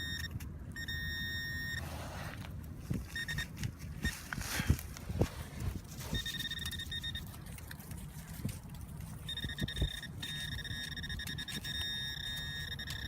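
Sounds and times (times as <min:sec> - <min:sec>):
metal detector pulsing tone: 0:00.0 - 0:01.9, 0:03.0 - 0:04.2, 0:06.0 - 0:07.3, 0:09.2 - 0:13.0.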